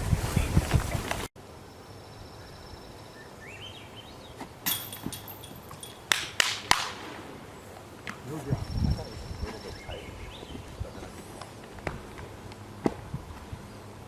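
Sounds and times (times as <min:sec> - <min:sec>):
wind buffeting microphone: 0:00.0 - 0:01.3, 0:08.2 - 0:11.2, 0:13.0 - 0:13.8
bird chirping: 0:01.8 - 0:04.6, 0:07.6 - 0:11.3
discs clanking metal chains: 0:04.7 - 0:06.0.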